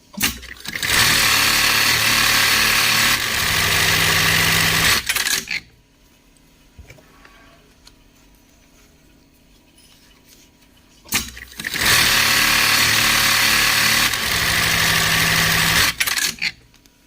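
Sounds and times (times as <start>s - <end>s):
sewing machine stitching: 0.2s - 5.6s, 11.1s - 16.6s.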